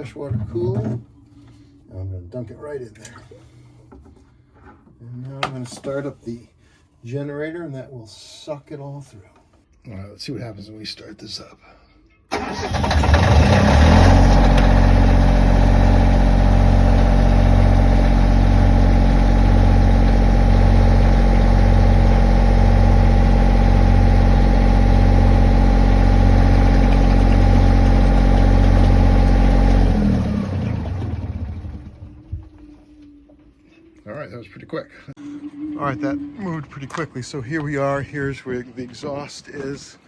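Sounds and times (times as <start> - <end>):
diesel generator running: 12.3 - 32.7.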